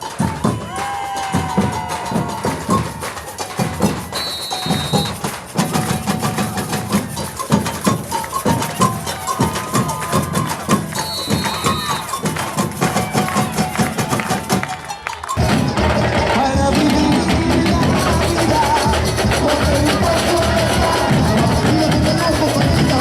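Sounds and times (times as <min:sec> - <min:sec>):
samba drum ensemble: 0:00.0 - 0:23.0
high whistle: 0:03.8 - 0:05.4, 0:09.0 - 0:13.9.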